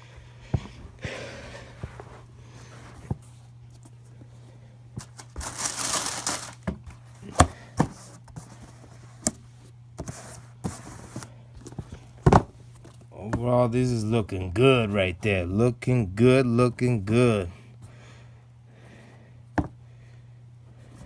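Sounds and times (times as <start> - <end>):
paper or plastic rustling: 5.0 - 6.8.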